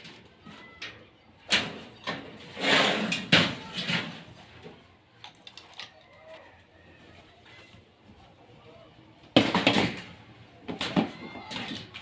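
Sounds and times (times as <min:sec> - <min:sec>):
knocks on wood and metal parts: 0:09.4 - 0:10.1.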